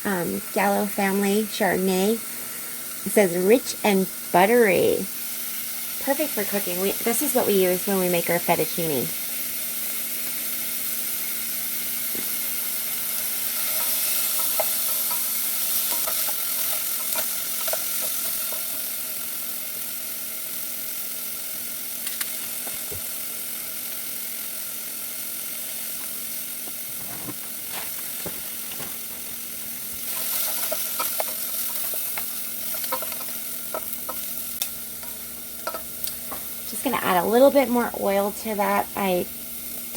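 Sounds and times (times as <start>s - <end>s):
vegetables sizzling in oil: 0.0s - 39.9s
utensil tapping and scraping pan: 13.6s - 18.9s, 30.1s - 34.3s, 35.0s - 36.6s.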